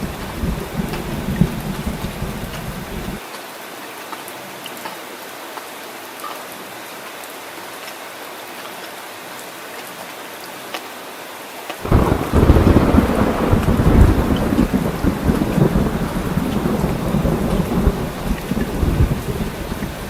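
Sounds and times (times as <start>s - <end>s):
thunder rumble: 0.0s - 3.2s, 11.8s - 20.0s
heavy rain hissing: 0.0s - 3.3s, 11.8s - 20.0s.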